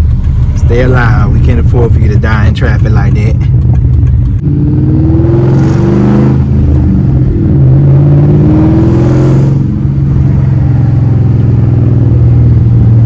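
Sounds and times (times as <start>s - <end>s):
loud engine revving and droning: 4.4s - 13.0s.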